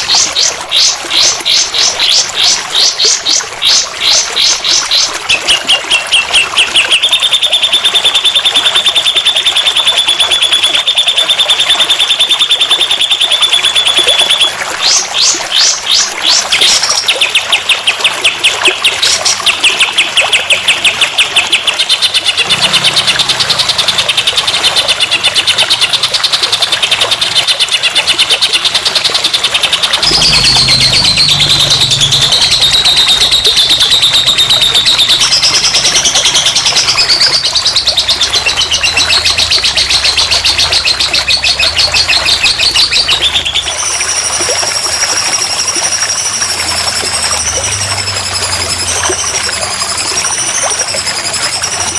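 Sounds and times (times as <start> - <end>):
songbird chirping trills: 29.2 - 51.9.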